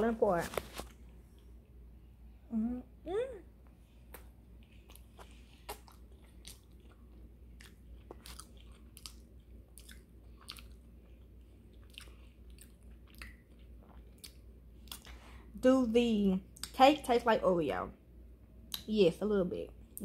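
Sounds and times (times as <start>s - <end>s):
faint chewing: 4.1s - 15.2s.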